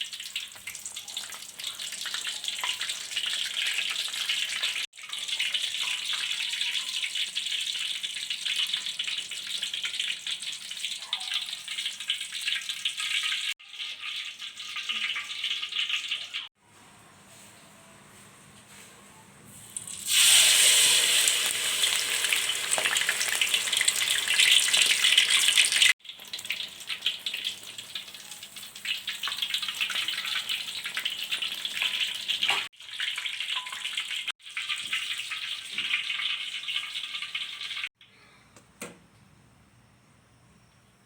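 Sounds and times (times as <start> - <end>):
batter sizzling and crackling in oil: 0.0 - 16.5, 19.6 - 37.9.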